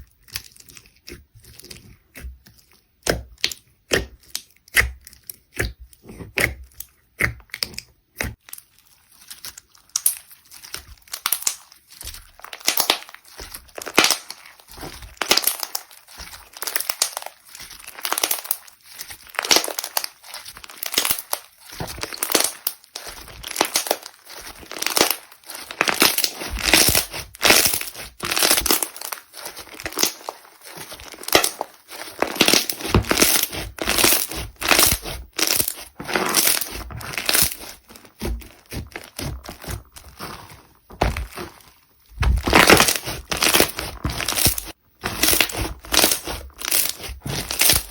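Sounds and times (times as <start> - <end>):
slime crackling when squeezed: 8.4 - 40.4, 42.4 - 47.9.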